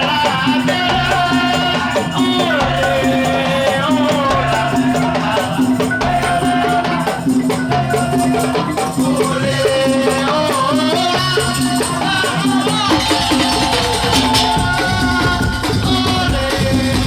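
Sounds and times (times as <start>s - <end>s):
clattering shaker percussion: 0.0s - 17.0s
wavering melody line: 12.9s - 15.6s
low drum notes: 12.9s - 17.0s.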